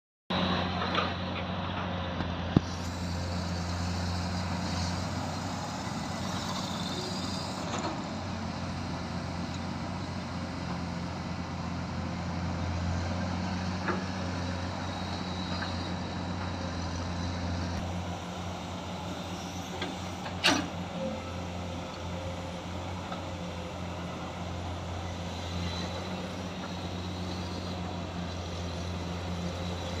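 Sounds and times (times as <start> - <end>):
excavator diesel engine running: 0.3 - 30.0.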